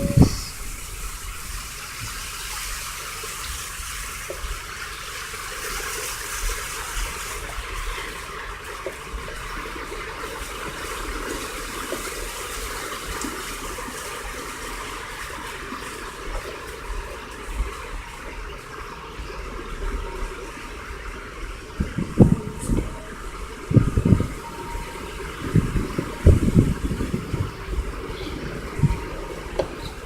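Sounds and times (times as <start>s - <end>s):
low car rumble: 0.0s - 3.0s, 16.2s - 30.0s
flood water swishing around car: 0.0s - 30.0s.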